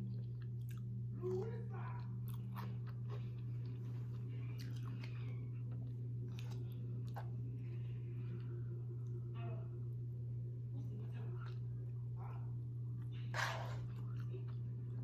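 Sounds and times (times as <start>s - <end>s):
person chewing food: 0.0s - 8.6s, 13.0s - 15.0s
low electrical hum: 0.0s - 15.0s.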